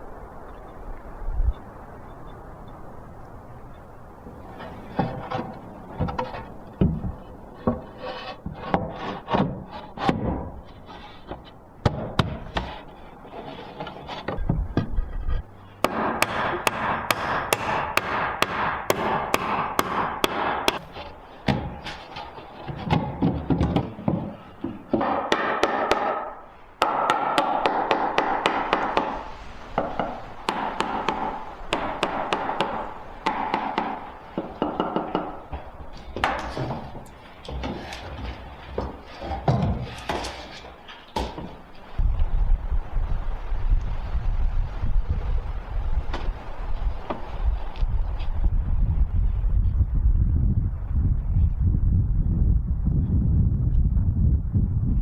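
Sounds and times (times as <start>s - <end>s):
steady rasping scraping: 7.5s - 11.6s, 12.4s - 18.2s, 36.0s - 41.1s.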